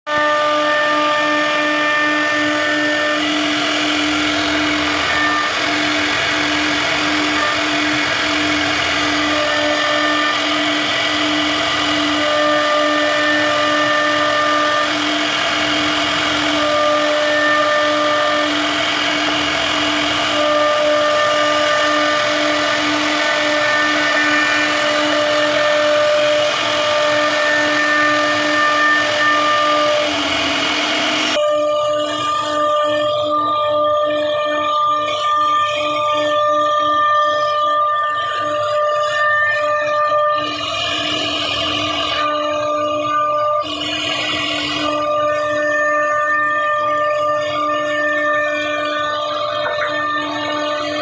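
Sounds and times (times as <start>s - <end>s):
router carving wood: 0.1s - 31.4s, 48.3s - 51.0s
high machine tones: 0.2s - 51.0s.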